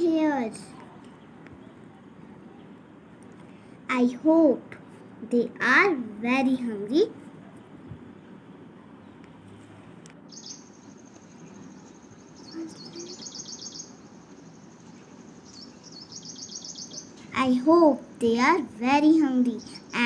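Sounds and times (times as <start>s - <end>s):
small birds twittering: 0.0s - 5.8s, 10.2s - 20.0s.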